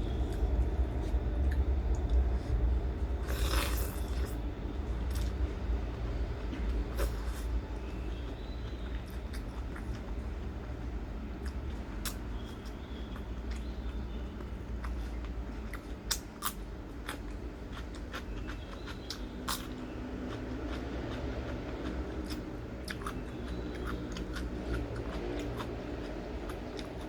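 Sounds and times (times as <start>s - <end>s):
person chewing crisp food: 0.0s - 5.4s, 6.6s - 10.5s, 11.3s - 27.0s
low hum: 0.0s - 14.6s.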